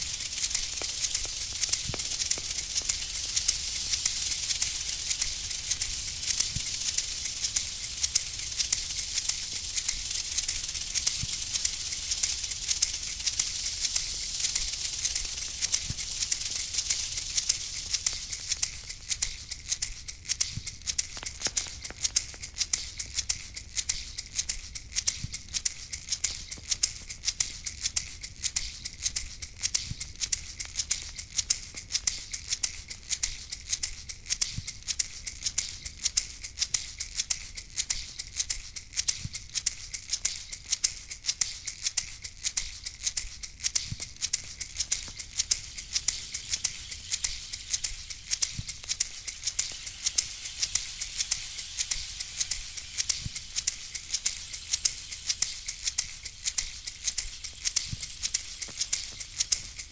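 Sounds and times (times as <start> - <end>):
rattle shaken rhythmically: 0.0 - 59.9.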